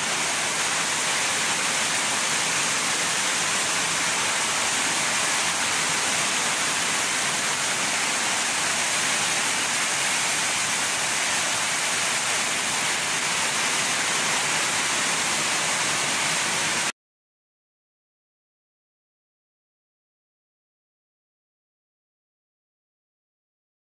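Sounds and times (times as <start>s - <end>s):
heavy rain pouring: 0.0s - 16.9s.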